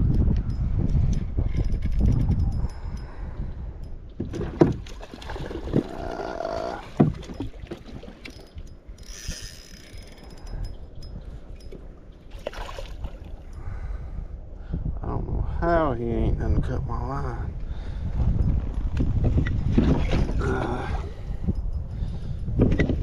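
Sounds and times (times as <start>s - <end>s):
handling rumble in kayak: 4.2s - 8.5s, 18.2s - 21.5s
water splashing: 4.8s - 8.4s, 12.3s - 13.4s.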